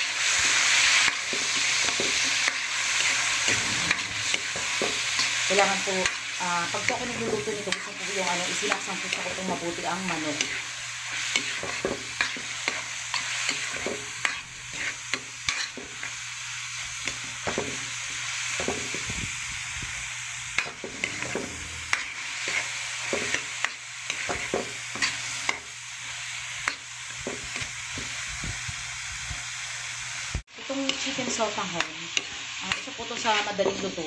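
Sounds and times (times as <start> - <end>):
chicken sizzling in a wok: 0.0 - 34.0
metal spatula scraping a pan: 0.2 - 16.1, 20.6 - 25.7.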